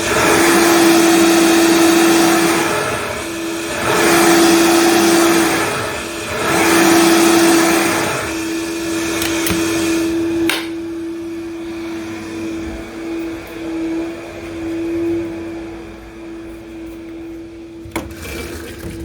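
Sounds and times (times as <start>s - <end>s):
blender running: 0.0s - 16.5s, 17.8s - 19.0s
blender switch click: 9.1s - 10.8s.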